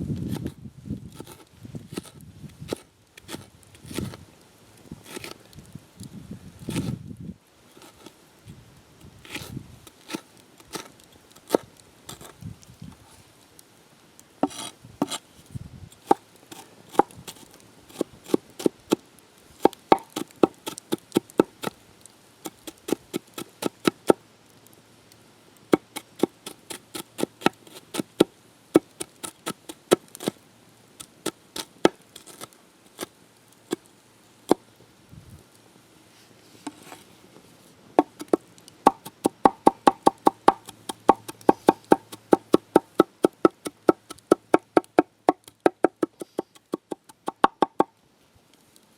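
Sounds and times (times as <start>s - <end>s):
knife chopping on cutting board: 38.0s - 44.9s.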